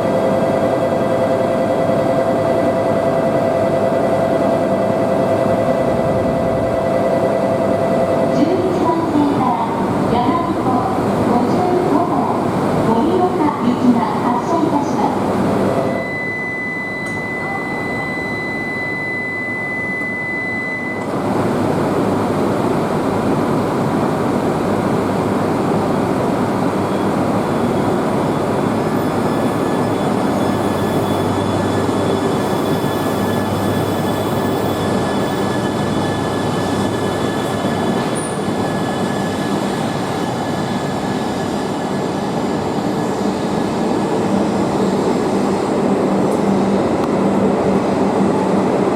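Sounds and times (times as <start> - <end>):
train rushing rumble: 21.1 - 48.9.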